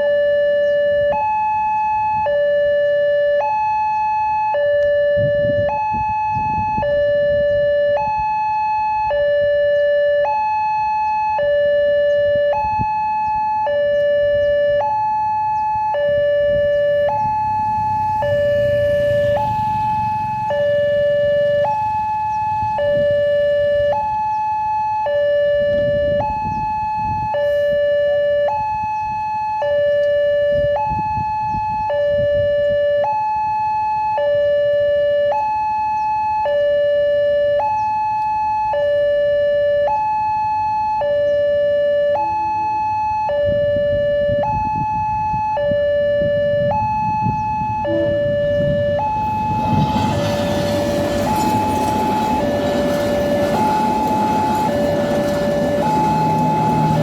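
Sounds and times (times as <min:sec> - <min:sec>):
level crossing two-tone alarm: 0:00.0 - 0:57.0
road traffic rumbling: 0:11.2 - 0:57.0
approaching train: 0:17.0 - 0:23.9, 0:47.0 - 0:57.0.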